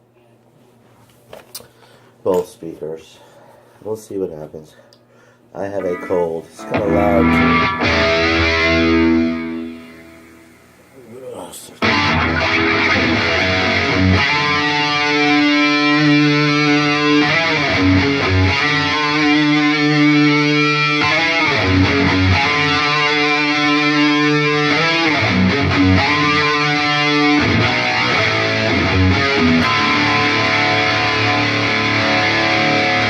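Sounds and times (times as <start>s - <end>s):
distorted electric guitar notes: 5.8s - 10.6s, 11.8s - 33.0s.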